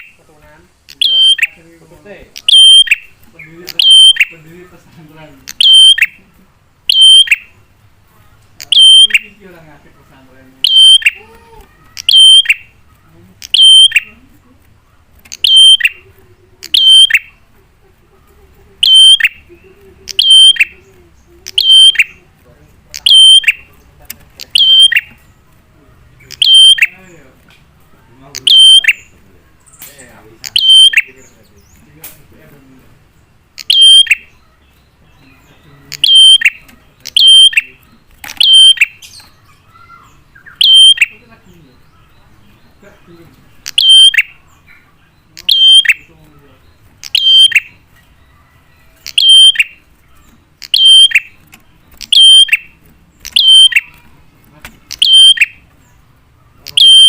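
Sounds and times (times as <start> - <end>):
prinia calling sharply: 0.0 - 18.0, 18.8 - 32.2, 33.0 - 57.0
bird call ringing note: 2.4 - 3.1, 3.8 - 4.4, 6.9 - 7.6, 8.6 - 9.4, 10.6 - 11.2, 12.0 - 12.8, 13.5 - 14.2, 15.3 - 16.0, 16.8 - 17.4, 18.8 - 19.4, 23.0 - 23.7, 24.5 - 25.2, 26.4 - 27.0, 28.4 - 29.1, 30.6 - 31.1, 33.6 - 34.4, 36.0 - 37.8, 38.4 - 39.2, 40.4 - 41.2, 43.7 - 44.4, 47.0 - 47.8, 49.1 - 49.9, 50.6 - 51.4, 52.1 - 54.0, 55.0 - 55.7, 56.7 - 57.0.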